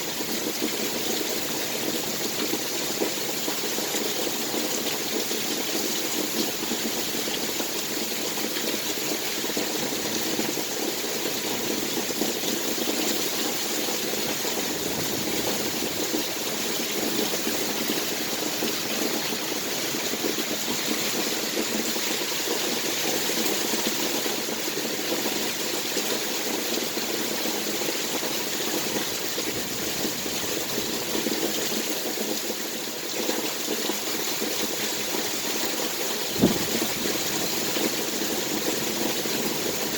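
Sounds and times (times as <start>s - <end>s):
heavy rain falling: 0.1s - 39.9s.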